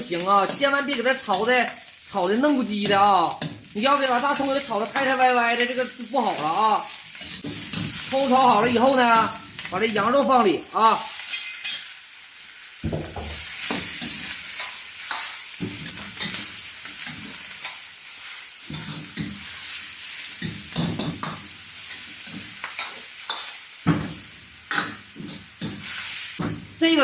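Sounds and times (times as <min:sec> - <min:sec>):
food sizzling in a wok: 0:00.0 - 0:27.0
utensil scraping and knocking a pan: 0:12.8 - 0:17.4.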